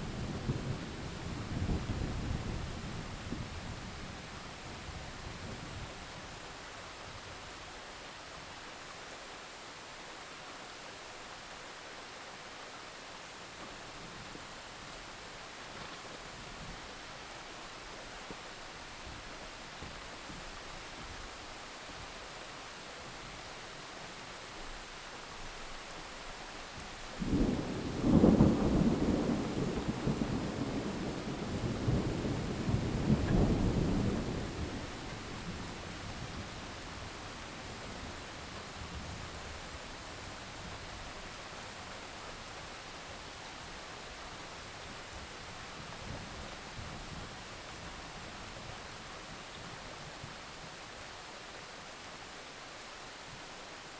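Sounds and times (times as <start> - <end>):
steady rain: 0.0 - 53.9
thunder rumbling: 27.2 - 37.2.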